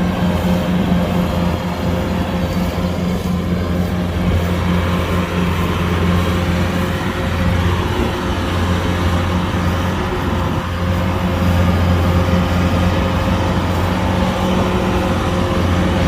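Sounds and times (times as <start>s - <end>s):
combine harvester engine drone: 0.0s - 16.0s
higher steady hum: 0.0s - 16.0s.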